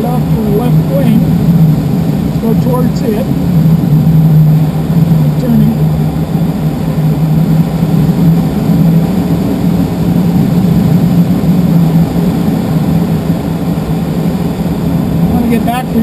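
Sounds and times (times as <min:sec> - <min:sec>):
air rushing through window: 0:00.0 - 0:16.0
low hum: 0:00.0 - 0:16.0.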